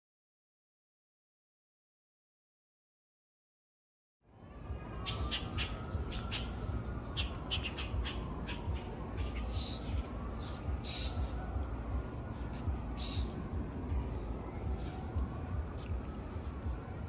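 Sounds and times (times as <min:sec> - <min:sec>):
birds squawking: 0:05.0 - 0:06.6, 0:07.2 - 0:11.3, 0:13.0 - 0:13.4.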